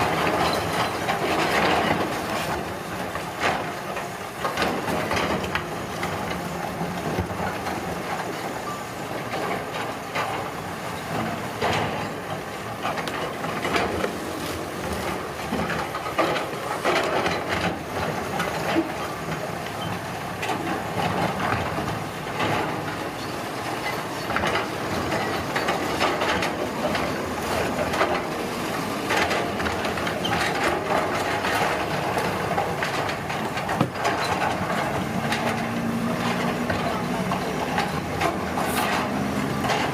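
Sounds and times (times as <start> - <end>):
construction machine engine running: 0.0 - 39.9
clattering and scraping knocks: 24.2 - 39.9.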